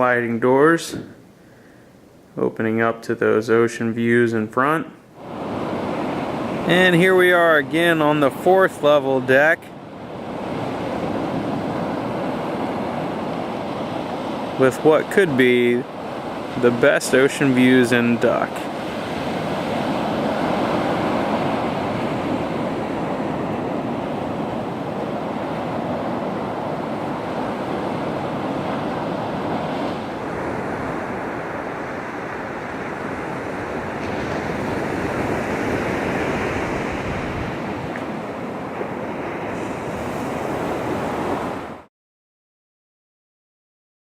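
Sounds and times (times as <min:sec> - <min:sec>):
ocean surf washing on beach: 0:04.6 - 0:41.9
wind on microphone: 0:18.6 - 0:41.8.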